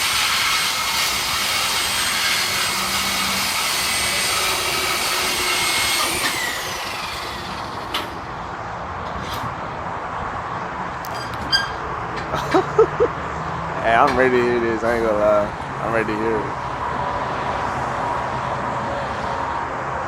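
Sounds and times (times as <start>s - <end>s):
cut-off tool whining: 0.0s - 8.2s.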